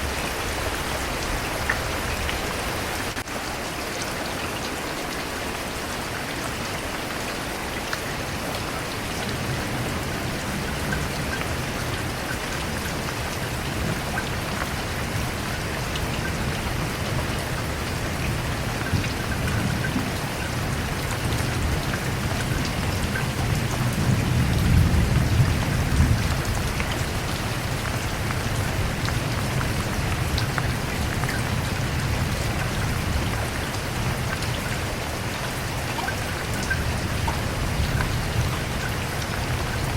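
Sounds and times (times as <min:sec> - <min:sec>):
rain pattering: 0:00.0 - 0:39.9
distant thunder rumbling: 0:09.2 - 0:34.2.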